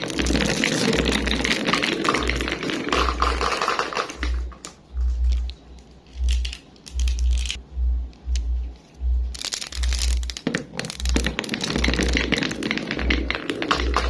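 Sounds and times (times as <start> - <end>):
marbles clattering on a track: 0.0 - 7.6, 9.3 - 14.0
deep bass pulses: 4.2 - 12.3, 13.0 - 14.0.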